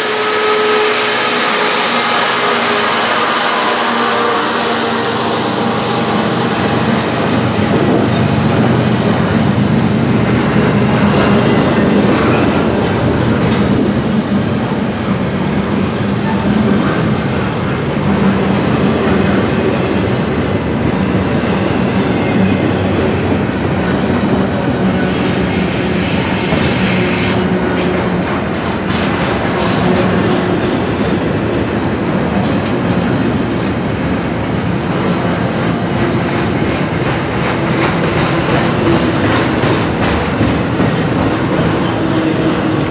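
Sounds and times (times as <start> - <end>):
train wheels clacking over rails: 0.0 - 42.9.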